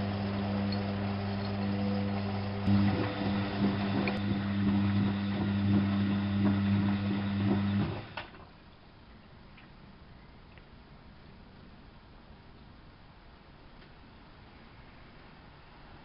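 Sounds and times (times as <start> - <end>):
washing machine humming: 0.0 - 8.5
water gurgling and clicking: 2.6 - 8.2.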